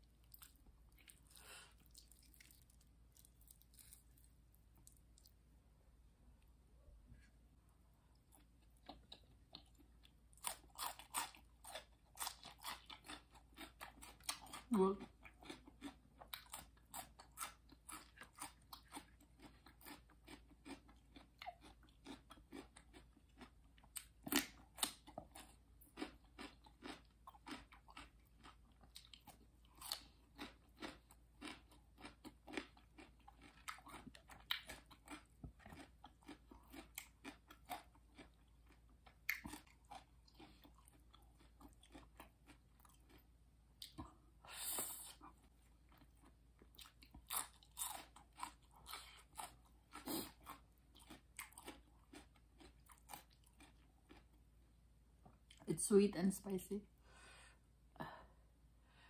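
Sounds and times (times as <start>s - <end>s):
crunching raw vegetables: 0.0s - 5.5s.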